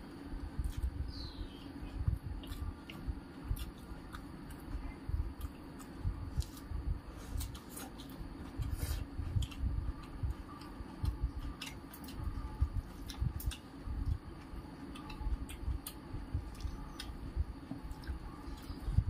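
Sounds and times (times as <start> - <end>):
soft low thumps: 0.3 - 3.6, 12.2 - 19.0
chewing and wet mouth clicks: 9.4 - 14.2, 14.8 - 18.8.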